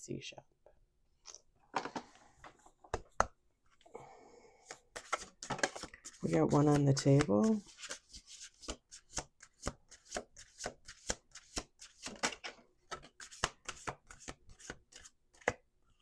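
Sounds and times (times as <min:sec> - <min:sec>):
cards shuffling: 0:04.6 - 0:15.6.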